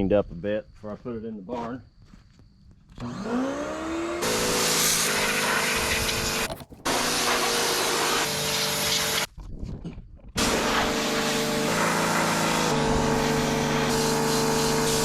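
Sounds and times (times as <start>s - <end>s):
pressure washer motor whining: 3.0s - 9.3s, 10.4s - 15.0s
spray jet hissing: 4.6s - 9.3s, 13.0s - 15.0s.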